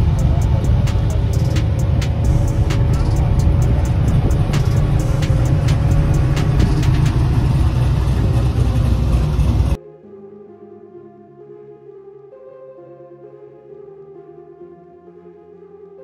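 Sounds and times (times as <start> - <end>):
exhaust crackles: 0.0 - 9.8
loud car engine rumbling: 0.0 - 9.8.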